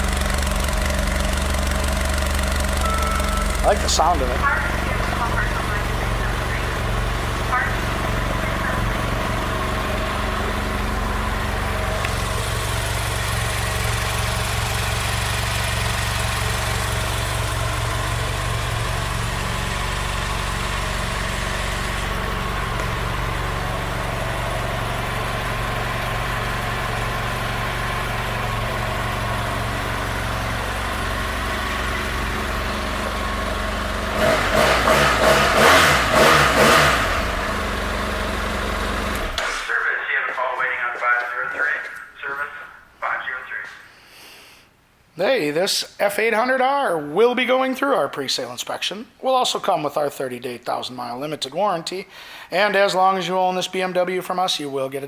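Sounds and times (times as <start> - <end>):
motorcycle engine idling and revving: 0.0 - 39.7.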